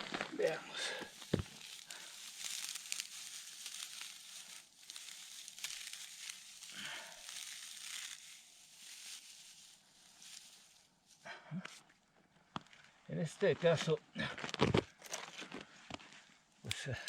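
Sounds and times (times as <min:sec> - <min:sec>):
dry material rustling and crinkling: 0:00.0 - 0:11.3.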